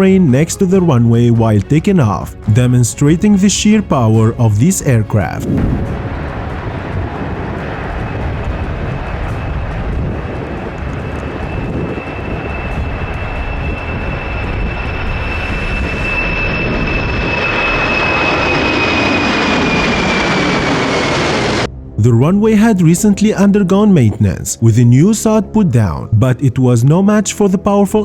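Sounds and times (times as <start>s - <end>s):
jet engines at takeoff power: 5.4s - 21.7s.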